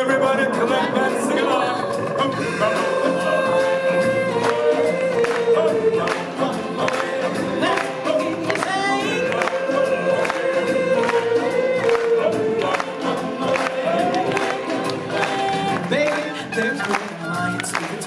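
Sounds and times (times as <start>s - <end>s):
chorus singing long notes: 0.0s - 16.5s
audience singing along: 0.0s - 17.3s.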